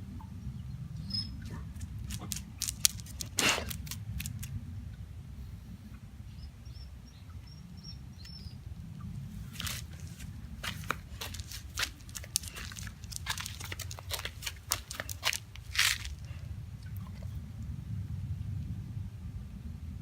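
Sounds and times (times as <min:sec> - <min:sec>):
sharp clicks and scrapes: 0:01.8 - 0:04.5, 0:09.6 - 0:16.3.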